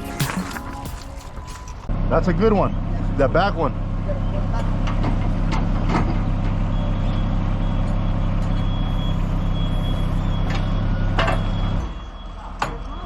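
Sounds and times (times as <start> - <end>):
large engine running: 0.0 - 11.8
high-pitched beeping alarm: 6.7 - 13.0.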